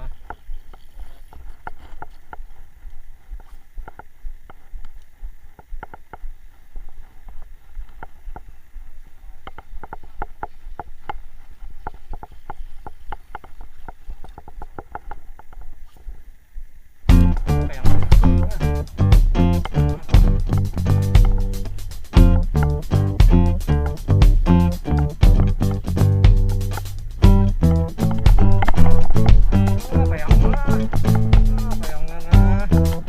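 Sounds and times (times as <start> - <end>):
low rumble: 17.1 - 33.0.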